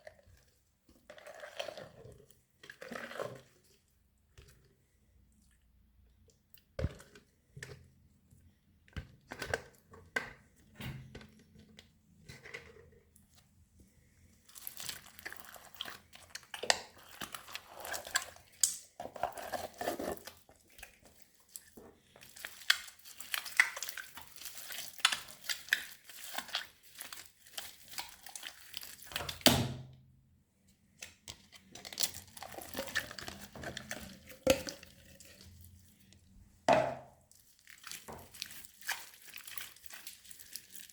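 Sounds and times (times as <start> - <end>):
hands squishing slime: 14.0 - 29.4, 31.0 - 36.2, 37.2 - 40.9
slime crackling and popping: 22.3 - 29.4.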